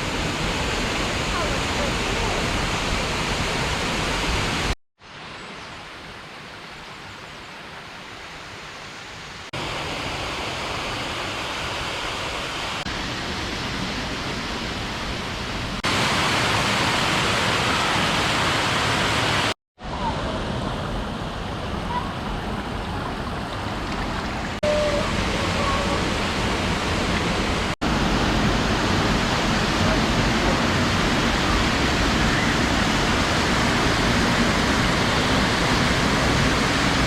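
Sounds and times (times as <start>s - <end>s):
waterfall rushing: 9.5s - 37.0s.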